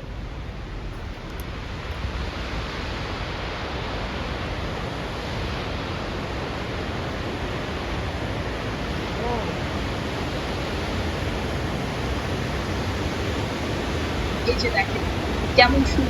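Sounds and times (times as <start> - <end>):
waterfall rushing: 5.3 - 16.0.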